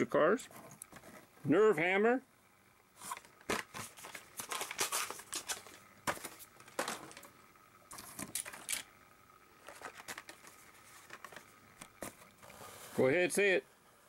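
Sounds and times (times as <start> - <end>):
toy car clicking and clattering: 8.0 - 9.0.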